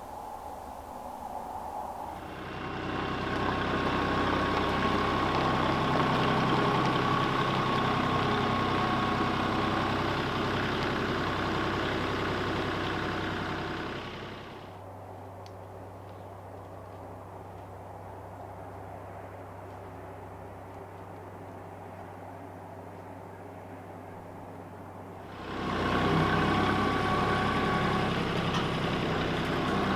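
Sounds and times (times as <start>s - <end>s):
engine running: 0.0s - 14.8s, 25.1s - 29.9s.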